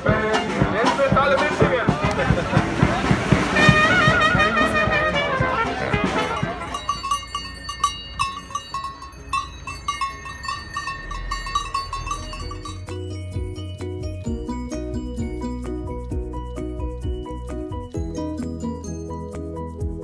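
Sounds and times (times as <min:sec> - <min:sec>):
brass band music: 0:00.0 - 0:07.0
crowd chatter: 0:00.0 - 0:09.4
cow bells clanking: 0:05.9 - 0:19.3.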